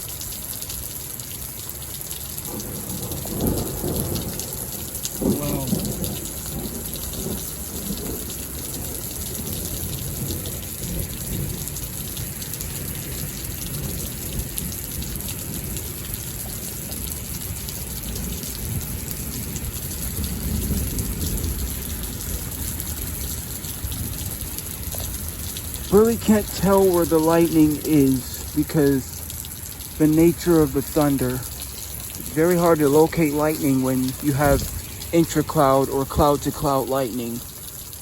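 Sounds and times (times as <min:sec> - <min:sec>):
steady rain hissing: 0:00.0 - 0:38.0
low rolling thunder: 0:02.5 - 0:15.8, 0:18.1 - 0:26.7.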